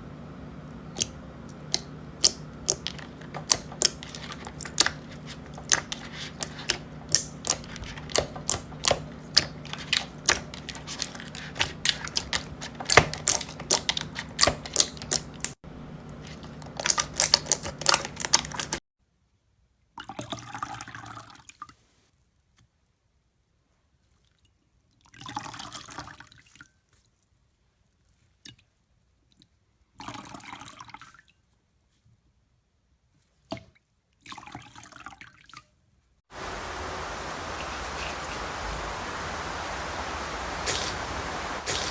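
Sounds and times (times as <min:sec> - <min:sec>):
slime squelching: 0:00.9 - 0:18.8, 0:39.4 - 0:41.9
slime clicking and popping: 0:01.0 - 0:15.6, 0:16.3 - 0:18.8.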